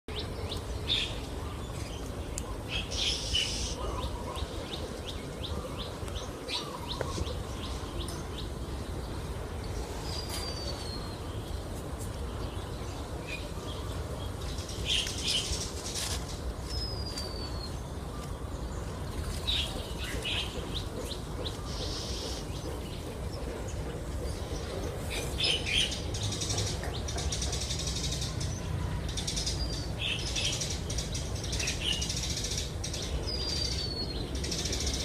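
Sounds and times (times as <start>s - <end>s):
bird warning chirps: 19.4s - 35.0s.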